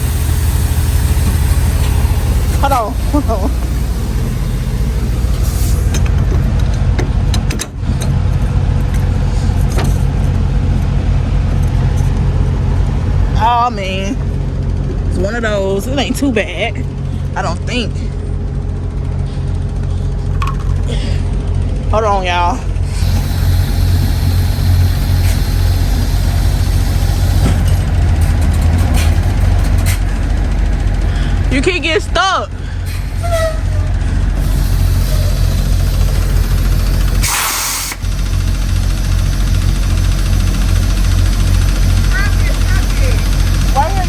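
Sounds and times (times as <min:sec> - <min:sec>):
diesel truck engine rumbling: 0:00.0 - 0:44.0
sharp clicks and rattles: 0:00.6 - 0:13.0, 0:19.7 - 0:21.0, 0:23.0 - 0:32.0, 0:33.9 - 0:44.0.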